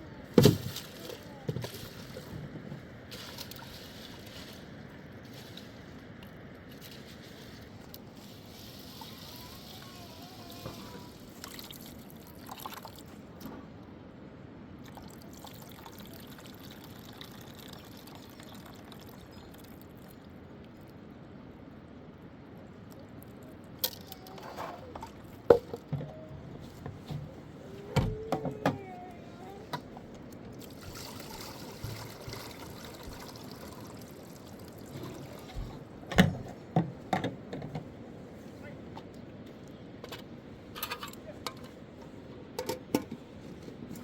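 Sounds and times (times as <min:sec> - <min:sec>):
trickling running water: 0:00.6 - 0:13.3, 0:14.8 - 0:20.8, 0:27.9 - 0:36.1.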